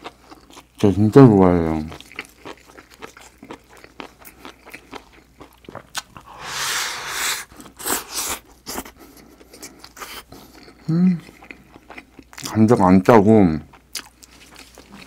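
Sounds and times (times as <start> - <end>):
chewing and wet mouth clicks: 1.9 - 6.2.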